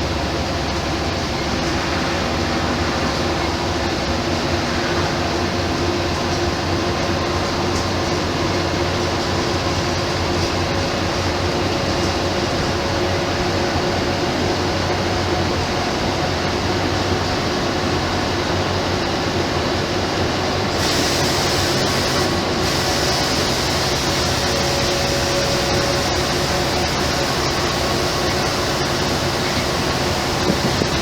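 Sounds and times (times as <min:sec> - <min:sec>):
bus diesel engine running: 0:20.3 - 0:31.0
bright hiss: 0:20.7 - 0:31.0
road noise rushing: 0:20.7 - 0:31.0.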